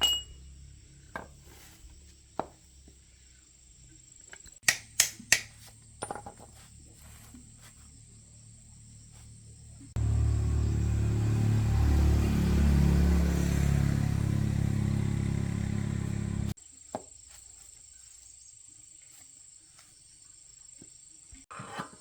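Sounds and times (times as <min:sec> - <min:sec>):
motorbike engine idling: 0:10.0 - 0:16.6.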